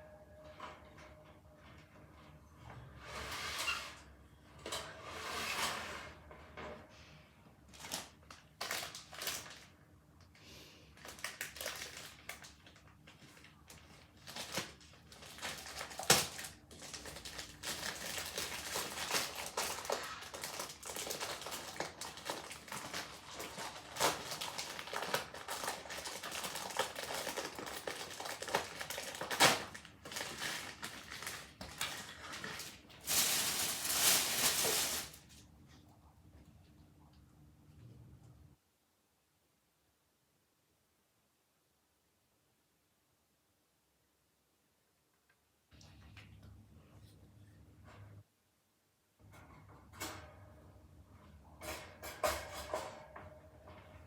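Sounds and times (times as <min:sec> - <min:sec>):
material rustling and crinkling: 0:11.0 - 0:35.5.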